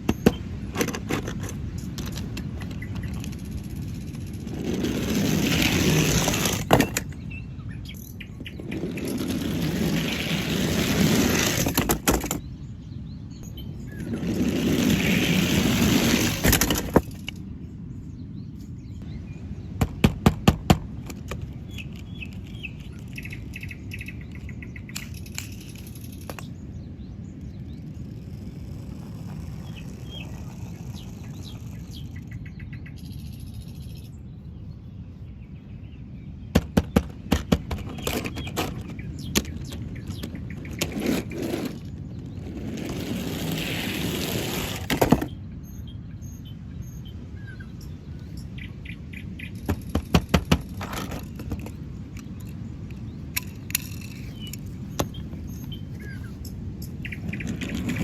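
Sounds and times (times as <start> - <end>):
sharp clicks and knocks: 36.5 - 41.9, 49.5 - 55.2.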